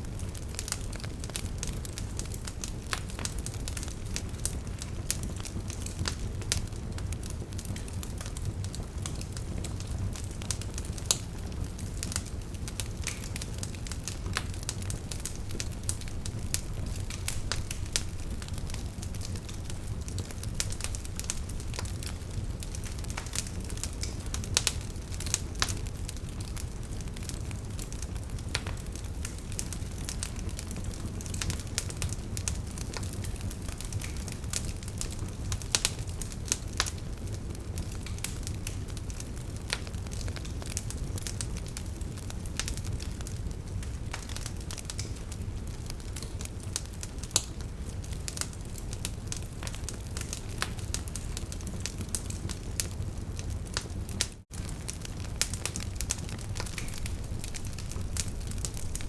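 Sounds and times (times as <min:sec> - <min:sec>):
wood fire crackling and popping: 0:00.0 - 0:59.0
low steady rumble: 0:13.7 - 0:23.3.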